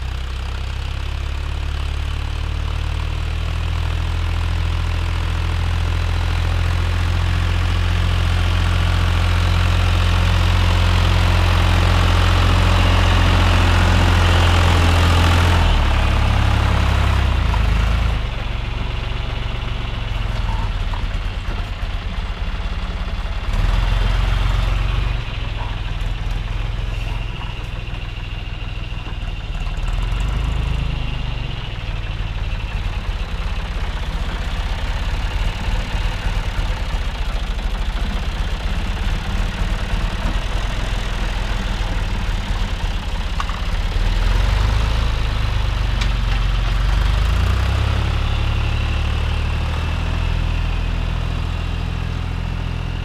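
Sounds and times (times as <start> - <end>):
tractor engine droning under load: 0.0 - 53.0.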